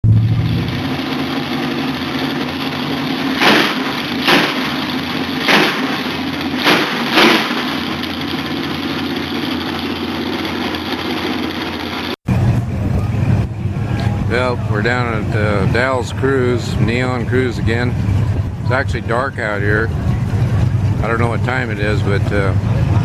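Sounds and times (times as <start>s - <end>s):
car engines in traffic: 0.0s - 23.0s
short loud bursts: 3.3s - 8.0s.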